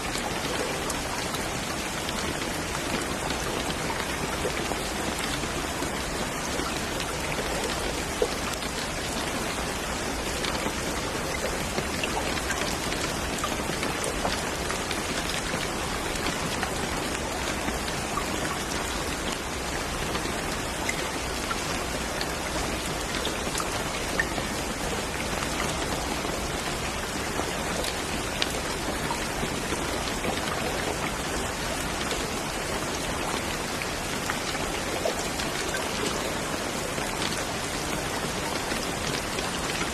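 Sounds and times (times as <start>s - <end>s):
raindrops pattering on a surface: 0.0s - 39.9s
steady rain falling: 0.0s - 39.9s.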